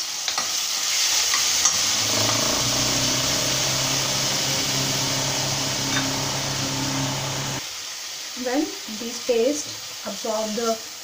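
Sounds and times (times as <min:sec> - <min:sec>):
steady low hum: 0:01.6 - 0:07.6.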